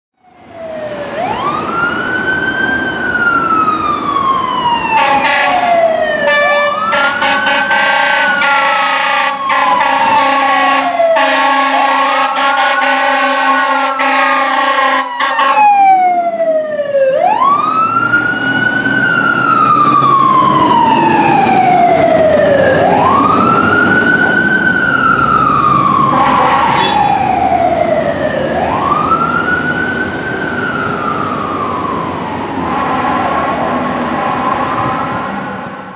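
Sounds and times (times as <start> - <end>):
fire engine siren wailing: 0.2 - 35.9
fire engine horn blasts: 4.9 - 15.8, 26.0 - 27.3, 32.6 - 33.5.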